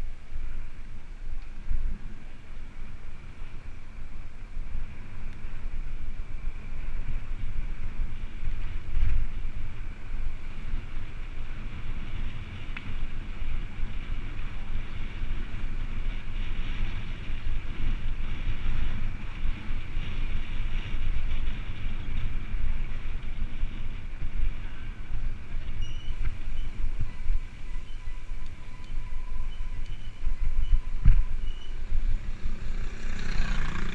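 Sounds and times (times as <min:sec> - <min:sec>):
bike rolling noise: 0:00.0 - 0:33.9
wind buffeting microphone: 0:00.0 - 0:33.9.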